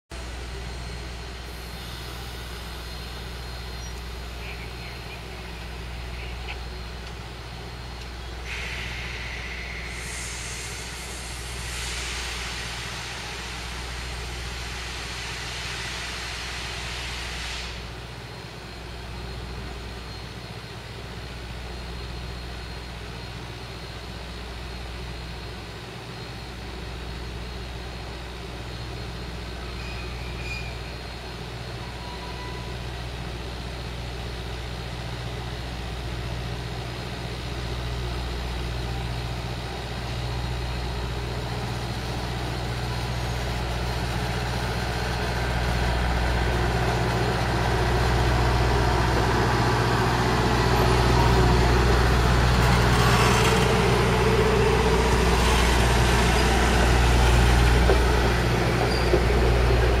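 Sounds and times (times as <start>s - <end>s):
diesel train engine rumble: 0.1s - 60.0s
hiss: 0.2s - 4.3s, 8.4s - 18.4s.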